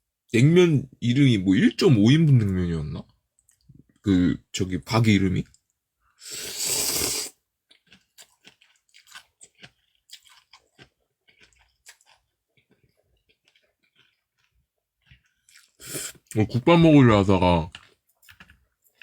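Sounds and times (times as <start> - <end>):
loud noodle slurp: 6.2 - 7.4, 15.8 - 16.3
wet chewing: 6.5 - 16.4, 17.7 - 19.0.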